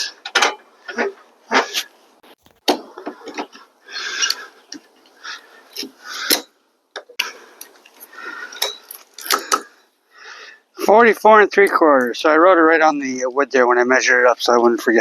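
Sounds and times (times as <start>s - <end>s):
rustling: 0.8s - 6.3s.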